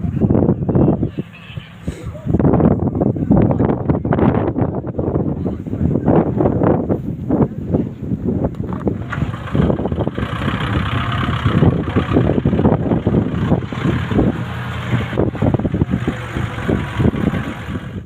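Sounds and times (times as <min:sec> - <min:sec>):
vehicle engine running: 0:08.4 - 0:18.0.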